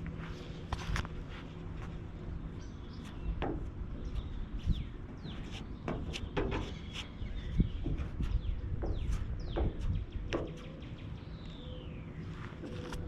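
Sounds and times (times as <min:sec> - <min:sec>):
birds chirping: 0:00.0 - 0:13.0
steady low rumble: 0:00.0 - 0:13.0
knocks and scrapes: 0:03.0 - 0:10.7.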